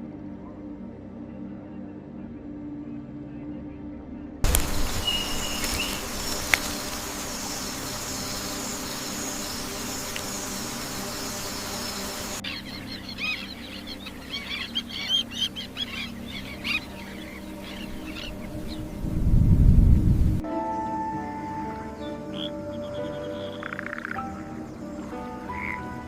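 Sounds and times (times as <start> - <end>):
birds calling and chirping: 4.4 - 19.6, 20.6 - 26.0
faint high steady tones: 4.4 - 26.0
forest ambience hiss: 4.4 - 26.0.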